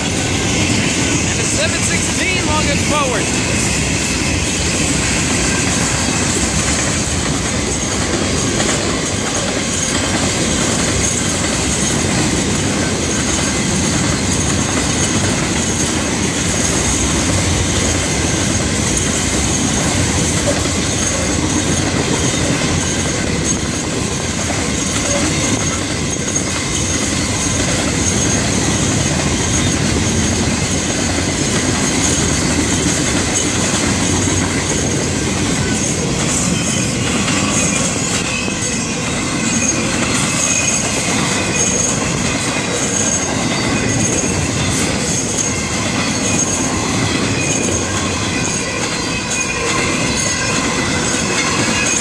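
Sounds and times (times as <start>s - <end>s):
freight train wheels rumbling: 0.0s - 52.0s
high-pitched wheel squeal: 35.6s - 44.4s.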